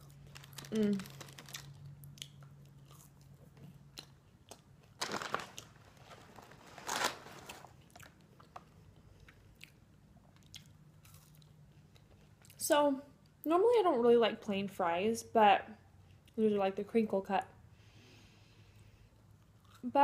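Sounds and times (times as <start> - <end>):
person crunching fries: 0.0 - 9.8, 10.4 - 11.6, 19.5 - 19.9.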